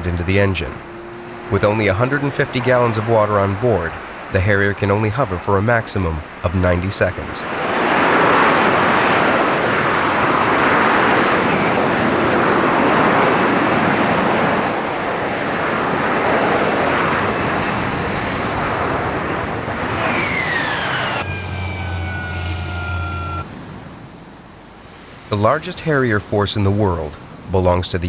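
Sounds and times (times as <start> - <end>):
loud jet engine rushing: 7.5 - 23.4
falling whine: 18.8 - 23.5.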